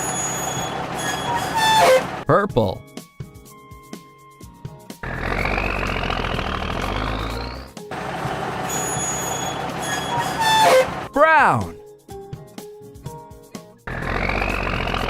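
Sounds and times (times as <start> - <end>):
cartoon engine revving: 5.0 - 8.8, 13.9 - 15.0.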